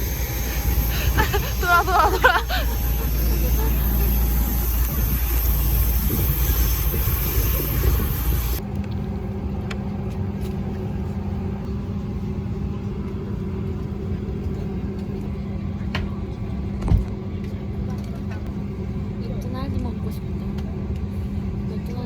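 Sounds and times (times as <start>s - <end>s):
low drone: 0.0s - 16.8s
airliner cabin rumble: 0.0s - 22.0s.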